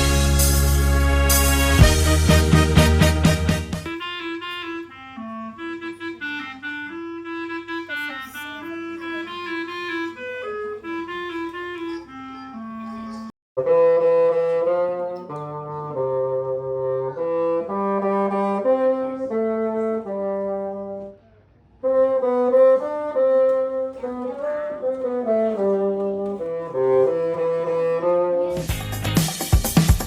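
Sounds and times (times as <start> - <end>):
bassoon playing: 0.0 - 21.2, 21.8 - 28.8
clarinet melody: 0.0 - 21.2, 21.8 - 28.8.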